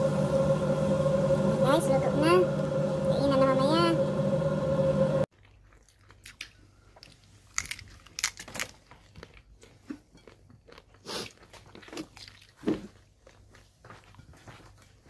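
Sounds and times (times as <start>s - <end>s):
crunching and chewing: 5.3s - 14.8s.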